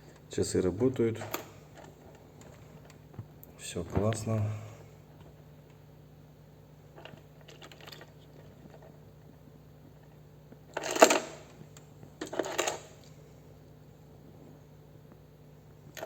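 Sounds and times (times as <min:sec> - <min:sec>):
steady low hum: 0:00.0 - 0:16.0
rustling and clinking: 0:07.0 - 0:13.1.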